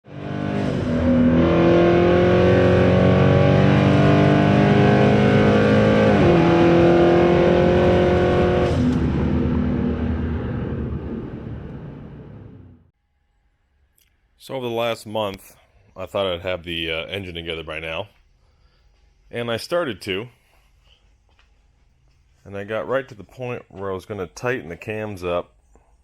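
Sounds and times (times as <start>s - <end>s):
car engine high revs: 0.0s - 12.8s.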